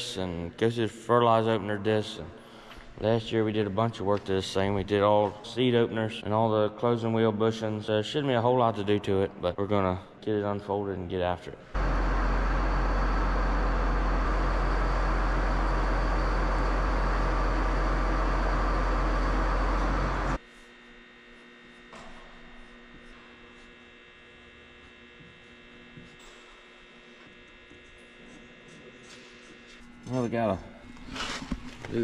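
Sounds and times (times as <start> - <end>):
machine with deep low rumble: 11.7 - 20.4.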